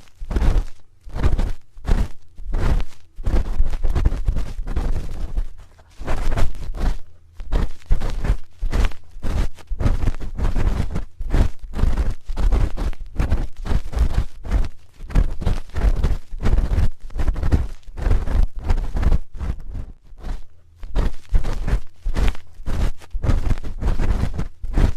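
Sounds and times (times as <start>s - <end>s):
spoon scraping a microphone: 0.0s - 24.9s.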